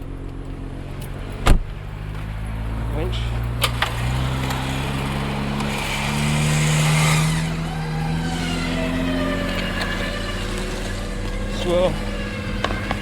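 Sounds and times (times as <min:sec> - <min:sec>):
vehicle engine under load: 0:00.0 - 0:13.0.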